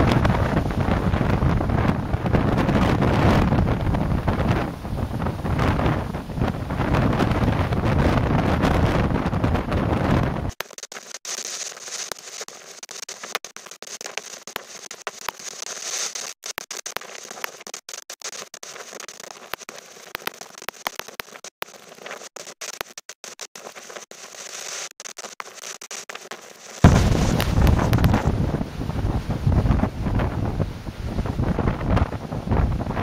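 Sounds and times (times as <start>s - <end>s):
wind buffeting microphone: 0.0s - 10.5s, 26.8s - 33.0s
crackling clicks: 10.5s - 28.3s.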